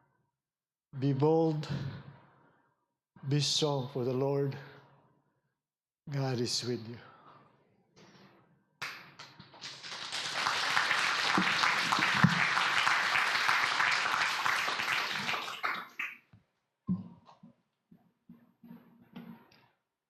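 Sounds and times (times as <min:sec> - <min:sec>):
congregation applauding: 0:09.5 - 0:16.2.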